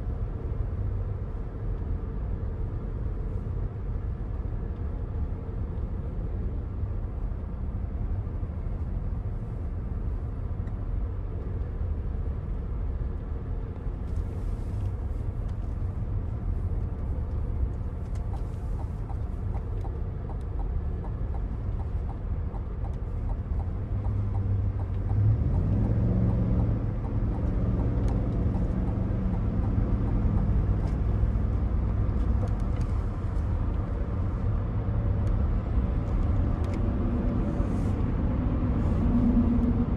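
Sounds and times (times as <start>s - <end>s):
road and tyre rumble: 0.0s - 39.9s
car engine accelerating: 14.0s - 39.9s.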